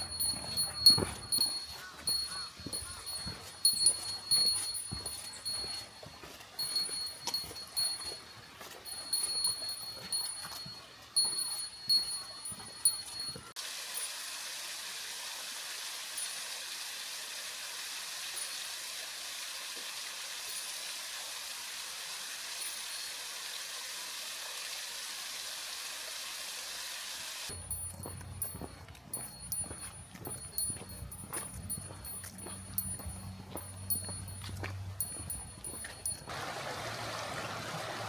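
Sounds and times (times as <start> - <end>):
footstep-like thumps: 0.0 - 13.4, 27.5 - 36.3
small bell jingling: 0.0 - 14.1, 22.6 - 23.2, 27.5 - 36.3
rushing water: 0.0 - 26.6, 31.5 - 38.0.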